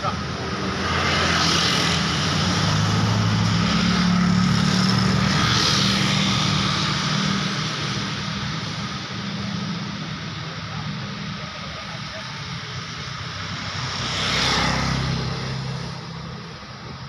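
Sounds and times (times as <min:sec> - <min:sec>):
vehicle passing by: 0:00.0 - 0:08.2, 0:13.6 - 0:17.0.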